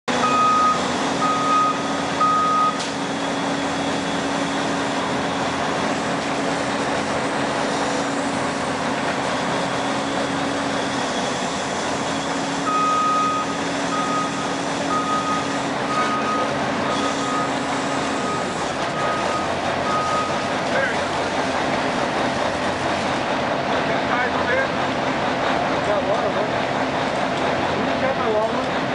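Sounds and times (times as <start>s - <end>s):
diesel engine running: 0.0s - 28.9s
reversing alarm beeping: 0.1s - 4.7s, 12.4s - 20.5s.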